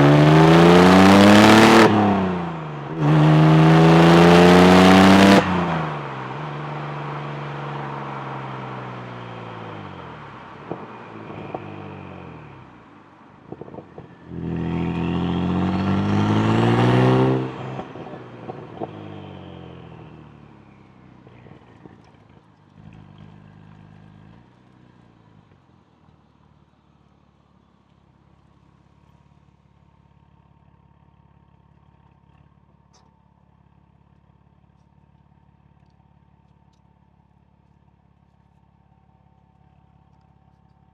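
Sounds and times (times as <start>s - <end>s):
car engine accelerating hard: 0.0s - 25.6s.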